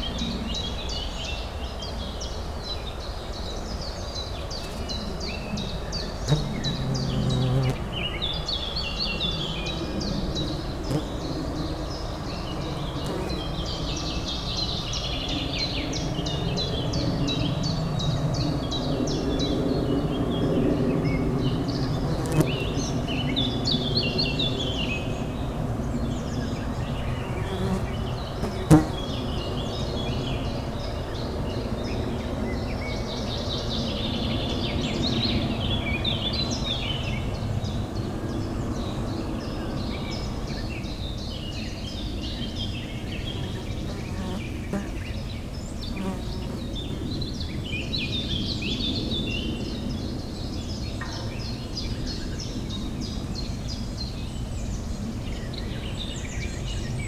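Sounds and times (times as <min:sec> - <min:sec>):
small birds chirping: 0:03.7 - 0:25.3, 0:26.0 - 0:31.2.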